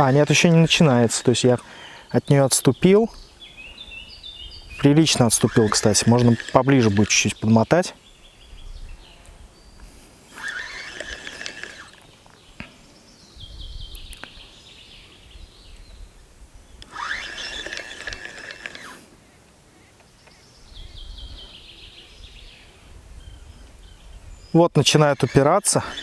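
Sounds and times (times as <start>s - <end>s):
fishing reel winding: 0.0s - 1.8s, 4.8s - 7.7s, 10.3s - 12.0s, 16.8s - 19.0s, 24.9s - 26.0s.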